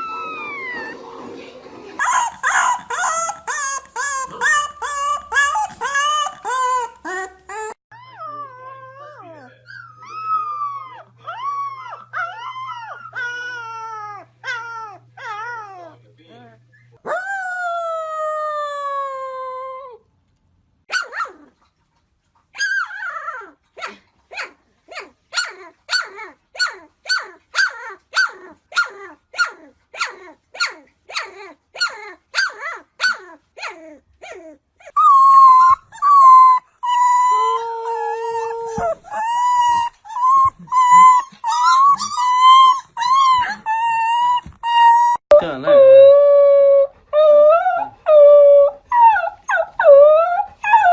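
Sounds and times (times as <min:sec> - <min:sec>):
puppies howling: 0:00.0 - 0:01.1, 0:02.0 - 0:16.0, 0:34.9 - 0:50.9
puppy yipping: 0:02.0 - 0:08.4, 0:20.9 - 0:21.5, 0:22.6 - 0:45.7.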